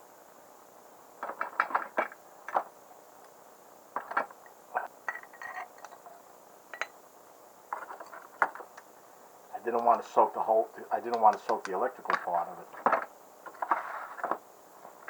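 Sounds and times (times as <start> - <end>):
small metal parts clinking: 4.0 - 7.0.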